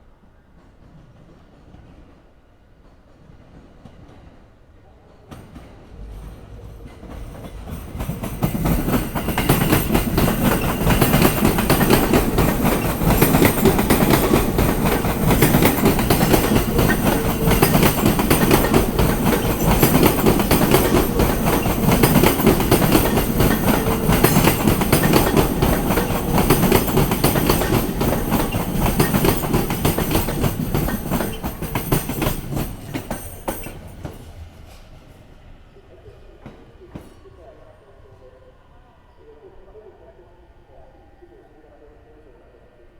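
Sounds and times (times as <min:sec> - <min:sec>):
train clattering over rail joints: 0:05.2 - 0:34.9.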